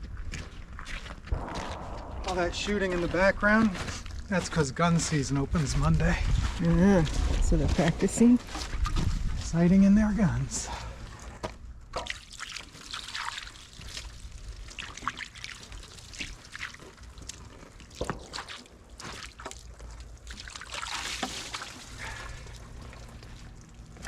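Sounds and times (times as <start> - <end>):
steady low hum: 1.3 - 11.9
water trickling and dripping: 11.9 - 24.0.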